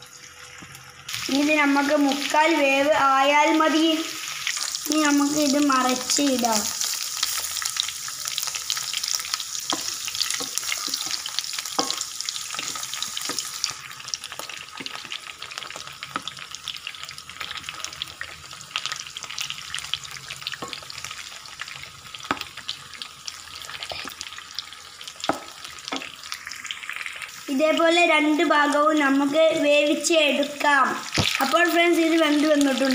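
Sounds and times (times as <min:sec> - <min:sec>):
chicken sizzling in hot oil: 0:00.0 - 0:32.9
oil ticks and pops: 0:31.1 - 0:31.5.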